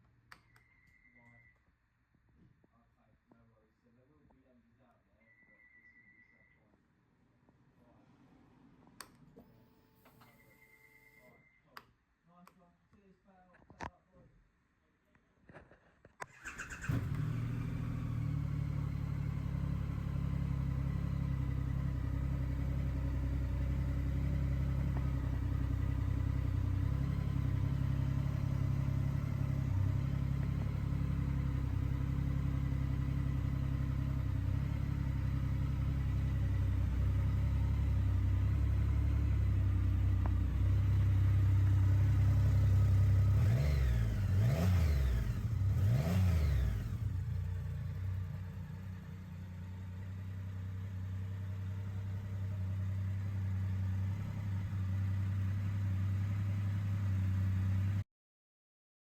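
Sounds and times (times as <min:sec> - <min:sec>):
motorcycle engine idling and revving: 0:16.3 - 0:58.0.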